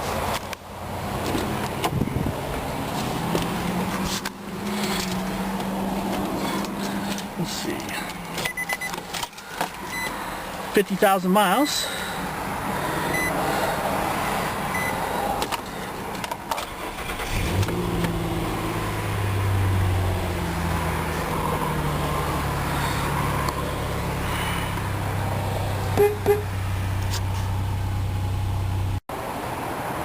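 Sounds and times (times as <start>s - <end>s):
car engine starting and idling: 0.0s - 10.8s, 11.9s - 29.0s
short beeps: 8.4s - 9.0s, 9.9s - 10.2s, 13.1s - 13.4s, 14.7s - 15.0s, 26.0s - 26.5s.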